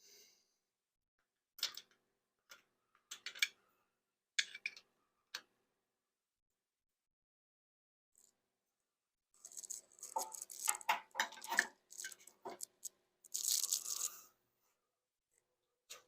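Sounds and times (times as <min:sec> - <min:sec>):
tools clicking and knocking: 0:09.4 - 0:14.1
rustling scrape: 0:09.4 - 0:14.2.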